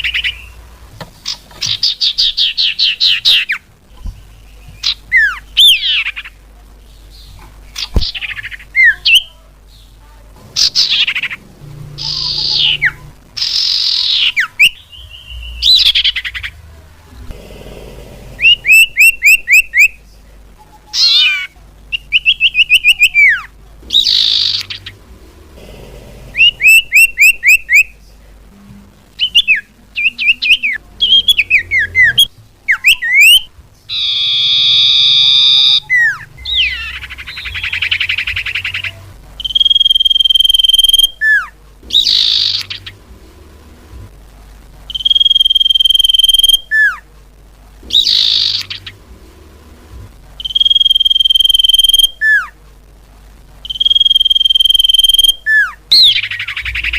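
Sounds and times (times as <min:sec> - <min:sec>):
harsh buzzy bird calls: 0:00.0 - 0:16.7, 0:17.4 - 0:20.1, 0:20.9 - 0:28.0, 0:29.1 - 0:43.3, 0:44.9 - 0:47.0, 0:47.8 - 0:49.2, 0:50.4 - 0:52.6, 0:53.6 - 0:56.9
bird whistled calls: 0:18.4 - 0:20.0, 0:22.0 - 0:24.9, 0:26.4 - 0:27.9, 0:29.2 - 0:42.9, 0:44.9 - 0:47.0, 0:47.9 - 0:48.9, 0:50.4 - 0:52.5, 0:53.6 - 0:56.9.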